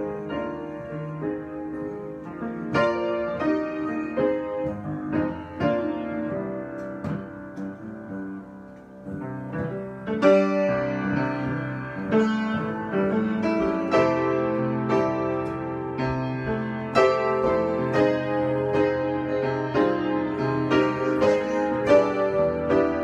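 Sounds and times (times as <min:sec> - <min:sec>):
solo piano playing: 0:00.0 - 0:23.0.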